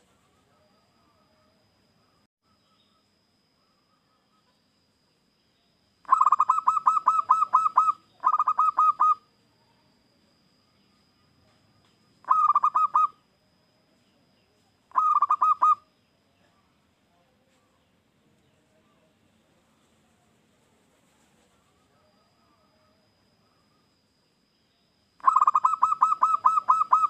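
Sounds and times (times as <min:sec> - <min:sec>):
dove cooing: 0:06.0 - 0:09.3, 0:12.2 - 0:13.2, 0:14.9 - 0:15.9, 0:25.2 - 0:27.0.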